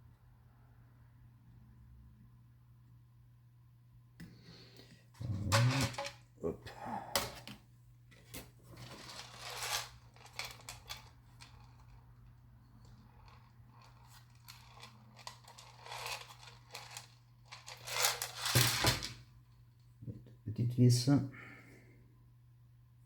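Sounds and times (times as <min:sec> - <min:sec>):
rustling plastic film: 0:08.8 - 0:11.5, 0:13.7 - 0:19.2.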